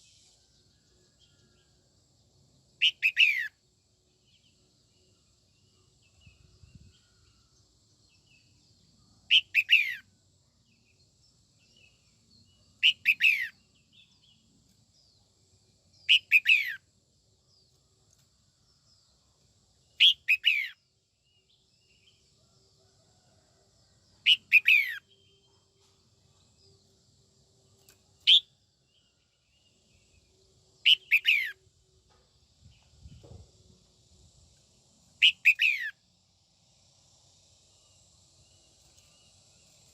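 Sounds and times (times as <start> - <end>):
bulbul calling: 2.8 - 3.5, 9.3 - 10.0, 12.8 - 13.5, 30.8 - 31.5, 35.2 - 35.9.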